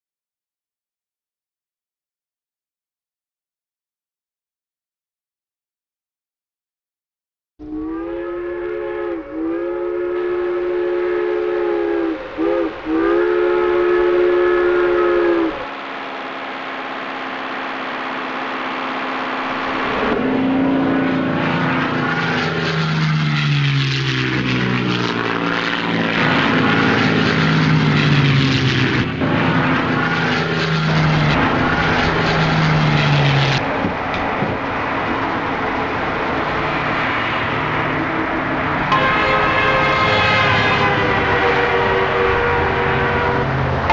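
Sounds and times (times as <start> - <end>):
train air horn: 7.6 - 18.2, 18.8 - 33.6, 37.0 - 43.9.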